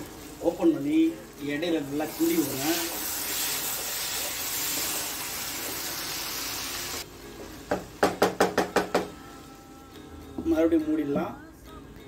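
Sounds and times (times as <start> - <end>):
meat sizzling in a hot pan: 0.0 - 8.1
spatula knocking against a pan: 7.7 - 9.2.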